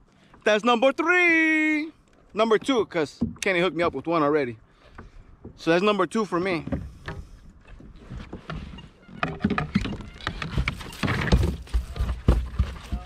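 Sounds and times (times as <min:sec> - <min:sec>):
knocks and thumps on a kayak: 0:02.4 - 0:04.2, 0:04.9 - 0:05.8, 0:06.5 - 0:13.0.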